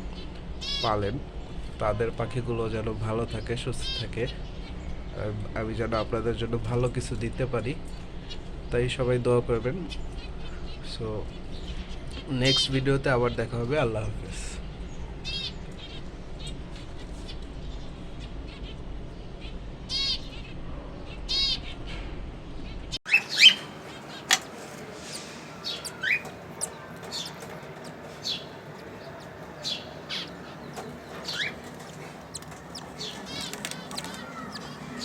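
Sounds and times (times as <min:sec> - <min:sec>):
birds chirping and calling: 0:00.0 - 0:35.0.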